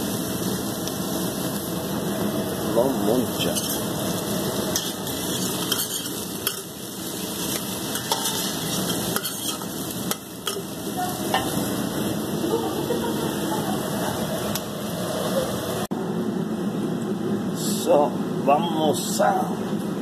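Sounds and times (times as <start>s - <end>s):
potatoes frying in oil: 0.0s - 15.8s.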